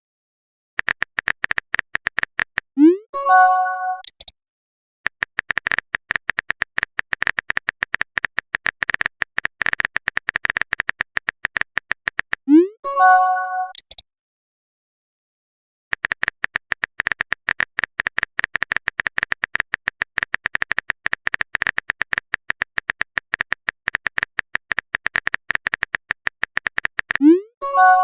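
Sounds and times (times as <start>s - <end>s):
high-pitched typing clicks: 0.8s - 4.3s, 5.1s - 12.7s, 13.6s - 14.0s, 15.9s - 28.0s.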